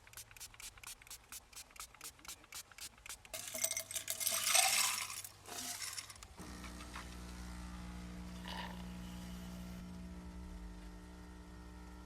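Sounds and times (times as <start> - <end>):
light clinking and rattling: 3.3 - 6.2.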